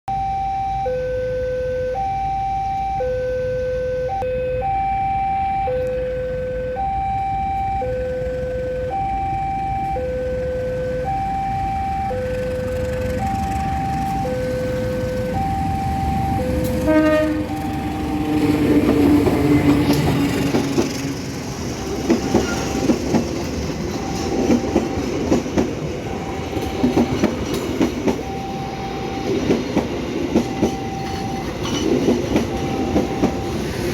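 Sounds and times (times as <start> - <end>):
two-tone warning alarm: 0.1 - 33.9
train wheels rumbling and clattering: 12.2 - 33.9.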